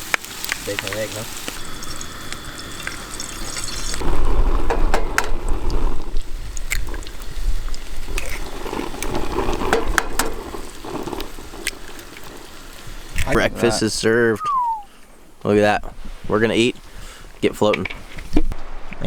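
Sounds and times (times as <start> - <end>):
metal utensils scraping frying pan: 6.7 - 13.2.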